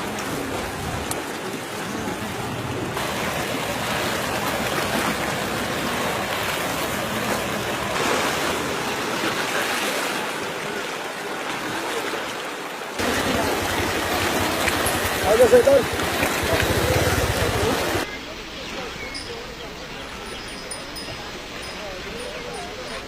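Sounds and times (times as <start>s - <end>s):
floodwater rushing: 0.0s - 18.1s.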